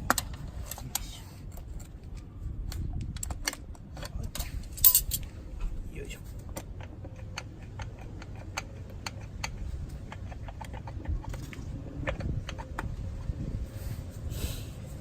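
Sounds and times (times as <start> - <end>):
steady low rumble: 0.0 - 15.0
metal tools clicking and tapping: 0.1 - 5.3, 6.4 - 12.9.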